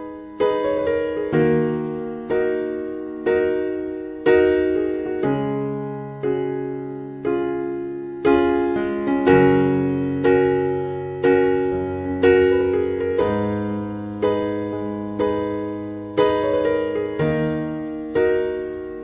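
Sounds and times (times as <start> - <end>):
electric piano playing slow chords: 0.0 - 19.0.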